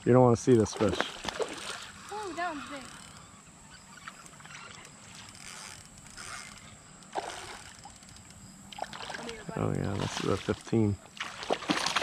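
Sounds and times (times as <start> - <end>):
creek water sloshing and splashing: 0.6 - 2.4, 7.1 - 8.0, 8.7 - 12.0.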